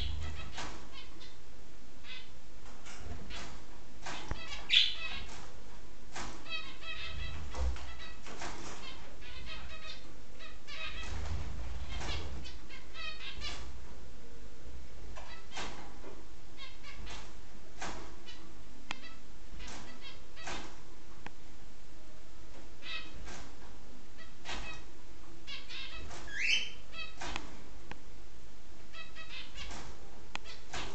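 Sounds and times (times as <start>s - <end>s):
budgerigars chirping: 0.0s - 1.4s, 2.0s - 2.4s, 4.1s - 5.4s, 6.4s - 13.7s, 18.2s - 20.6s, 22.8s - 23.2s, 24.2s - 27.3s, 28.9s - 29.8s, 30.4s - 30.8s.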